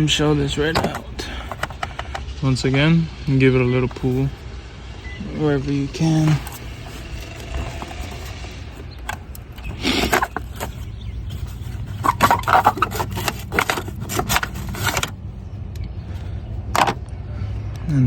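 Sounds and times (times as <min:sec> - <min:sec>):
hard plastic clicks and scrapes: 0:00.4 - 0:02.3, 0:06.0 - 0:15.2, 0:16.7 - 0:17.1.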